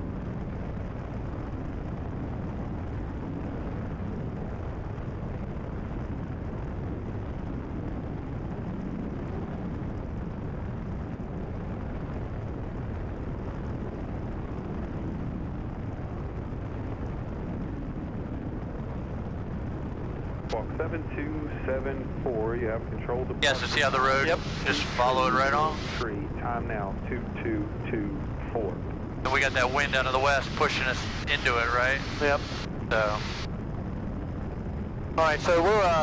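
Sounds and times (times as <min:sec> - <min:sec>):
airplane engine and propeller drone: 0:00.0 - 0:36.0
airflow noise: 0:20.5 - 0:33.5.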